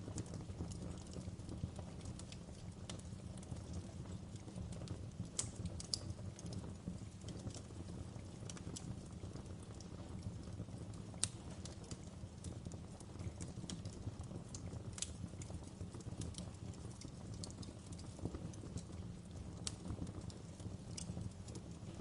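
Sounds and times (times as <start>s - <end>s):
low rumble of flame: 0.0s - 22.0s
wood fire crackling and popping: 0.0s - 22.0s.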